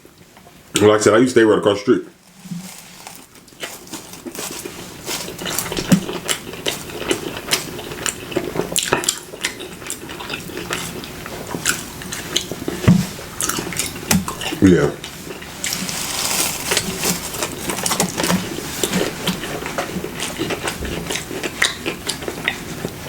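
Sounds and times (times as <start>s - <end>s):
biting and chewing: 2.2s - 9.6s, 15.3s - 22.6s.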